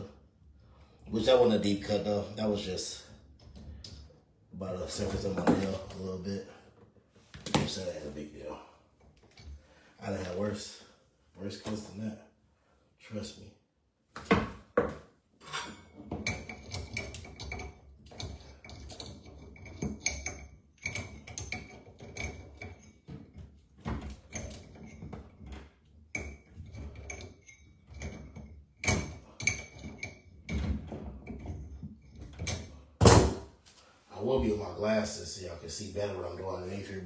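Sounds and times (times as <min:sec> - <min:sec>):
tools knocking and rattling: 0:04.9 - 0:06.0, 0:14.2 - 0:33.5.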